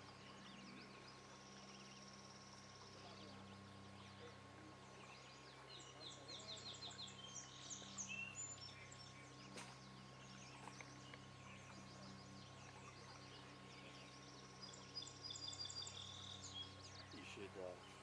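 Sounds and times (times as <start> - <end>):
faint steady hum: 0.0 - 18.0
songbird chirping: 0.0 - 18.0.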